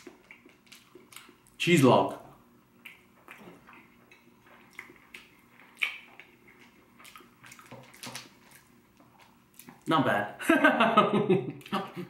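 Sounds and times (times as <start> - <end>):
man chewing wetly: 0.0 - 1.6, 2.7 - 9.9.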